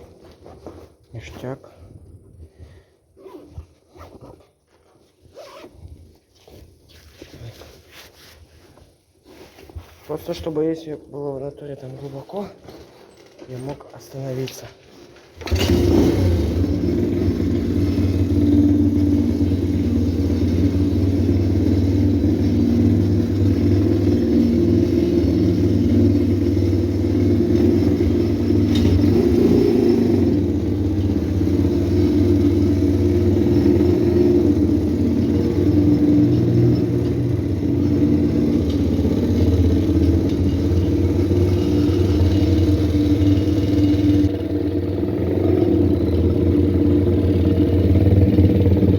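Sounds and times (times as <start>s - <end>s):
motorbike engine running: 15.4s - 48.9s.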